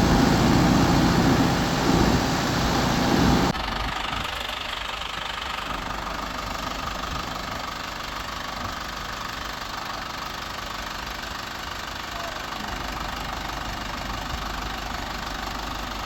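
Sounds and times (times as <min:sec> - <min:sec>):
loud sound cutting off: 0:00.0 - 0:03.6
engine idling: 0:00.0 - 0:16.0.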